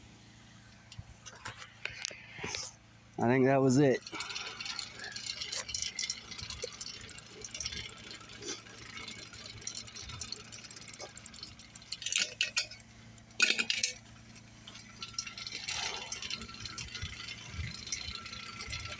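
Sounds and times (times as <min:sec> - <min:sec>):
metal clattering: 0:03.9 - 0:18.9
metallic clinks and rattles: 0:03.9 - 0:18.9.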